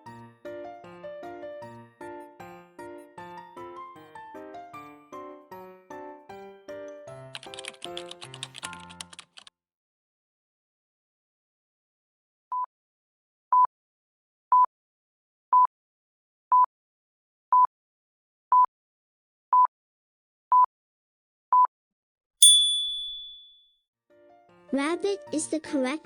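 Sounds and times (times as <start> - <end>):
bright ding: 22.4 - 23.6.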